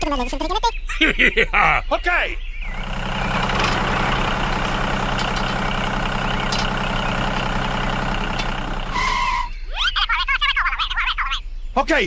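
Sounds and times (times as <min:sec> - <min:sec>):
heavy vehicle engine idling: 0:02.6 - 0:09.5.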